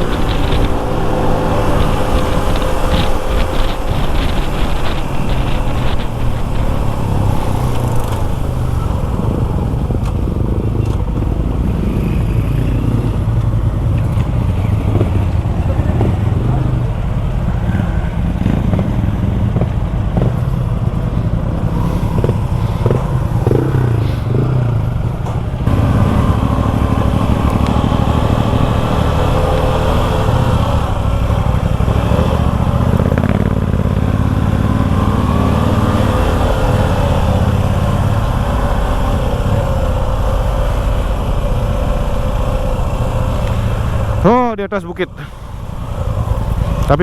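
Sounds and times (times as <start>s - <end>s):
knocks and rattles: 0.0s - 11.2s
motorcycle engine: 0.0s - 47.0s.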